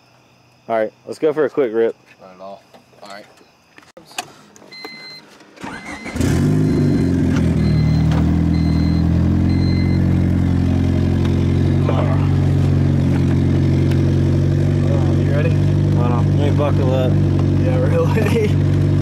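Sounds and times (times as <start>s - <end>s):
car engine starting and idling: 4.1s - 19.0s
car warning chime beeping: 4.7s - 10.2s.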